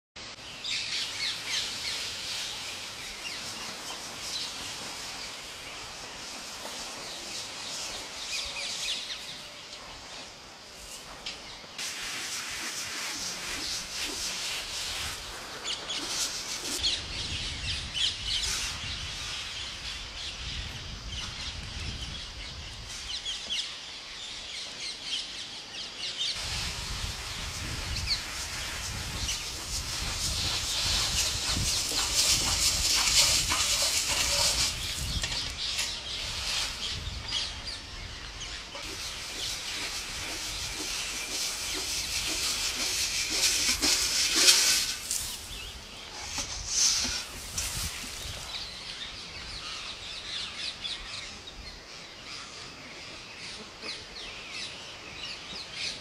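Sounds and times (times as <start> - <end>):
birds chirping and calling: 27.6 - 56.0.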